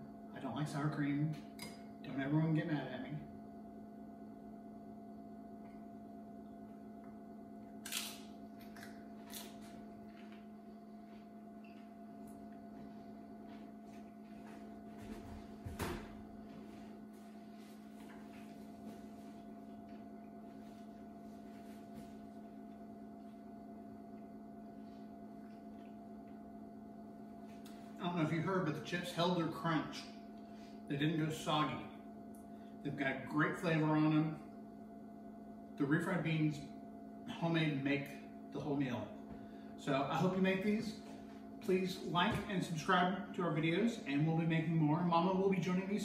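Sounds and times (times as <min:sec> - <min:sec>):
low appliance hum: 0:00.0 - 0:46.0
chips crunching while chewed: 0:07.8 - 0:09.8.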